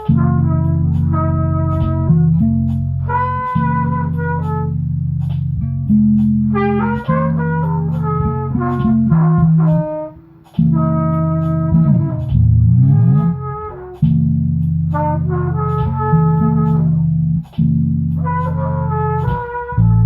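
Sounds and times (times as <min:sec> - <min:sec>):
band playing instrumental: 0:00.0 - 0:20.0.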